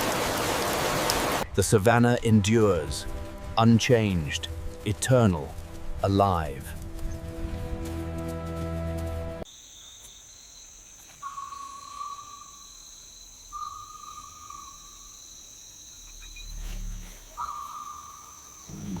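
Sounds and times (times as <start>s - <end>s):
insects trilling: 9.5s - 19.0s
drawn-out animal call: 16.1s - 19.0s.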